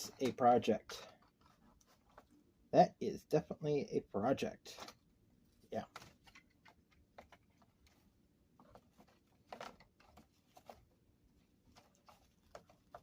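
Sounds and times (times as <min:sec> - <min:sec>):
plastic parts clicking and rustling: 0:00.0 - 0:02.4, 0:05.8 - 0:10.9, 0:11.7 - 0:13.0.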